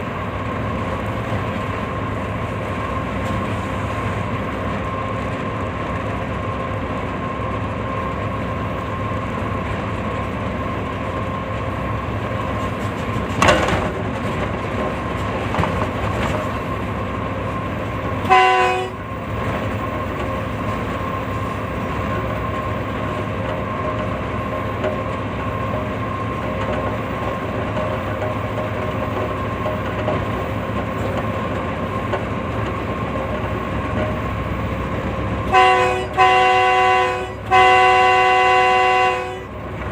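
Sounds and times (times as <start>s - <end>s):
moving train rumble and rattle: 0.0s - 39.9s
train horn blast: 18.2s - 19.2s, 35.4s - 39.6s.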